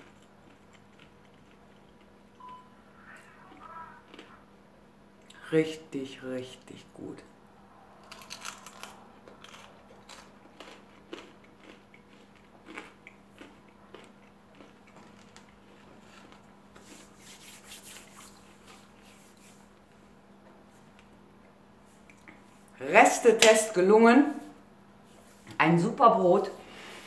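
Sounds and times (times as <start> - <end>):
faint steady hum: 0.0 - 27.0
bread crust crunching: 8.0 - 18.7.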